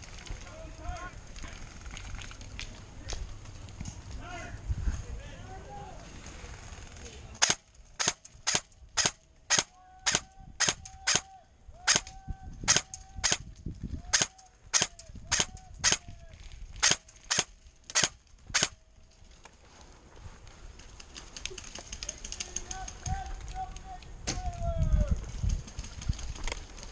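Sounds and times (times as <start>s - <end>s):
airsoft gun firing shots: 7.4s - 11.3s, 11.9s - 12.1s, 12.7s - 13.5s, 14.1s - 16.0s, 16.8s - 18.8s.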